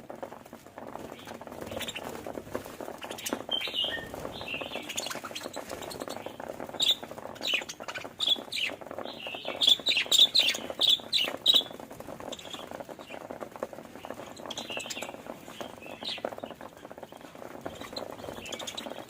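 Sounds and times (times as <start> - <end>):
scratchy clicking: 0.0 - 19.0
budgerigars chirping: 3.0 - 11.7, 17.7 - 19.0.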